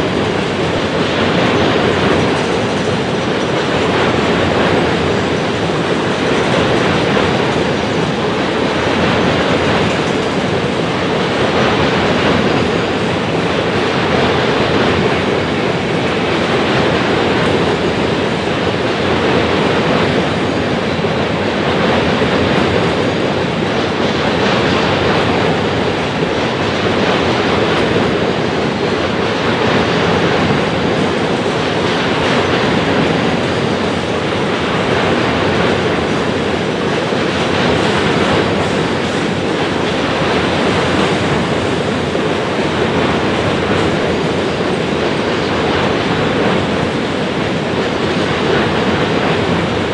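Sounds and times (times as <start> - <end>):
freight train wheels clattering: 0.0 - 49.9.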